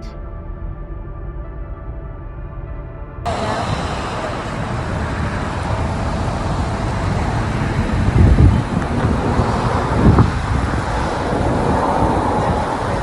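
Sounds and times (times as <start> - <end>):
car road noise and wind rumble: 2.6 - 13.0
wind gusts hitting microphone: 3.3 - 13.0.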